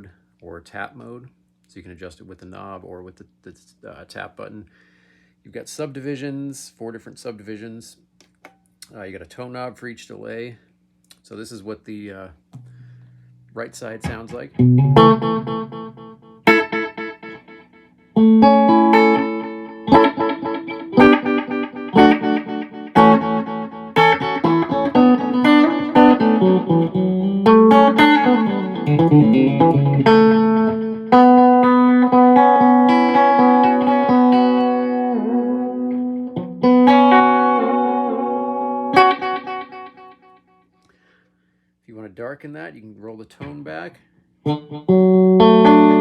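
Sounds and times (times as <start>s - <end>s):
electric guitar with delay: 14.0s - 40.2s.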